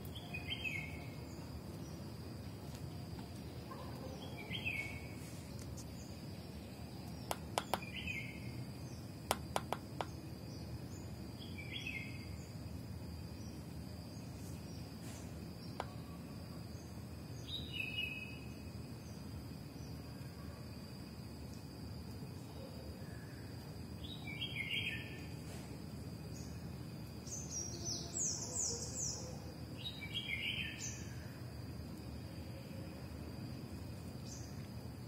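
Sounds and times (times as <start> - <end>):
bird chirping: 0.0 - 2.0, 3.7 - 12.6
faint high-pitched whine: 0.0 - 35.0
sharp clicks: 7.1 - 7.9, 9.3 - 10.2.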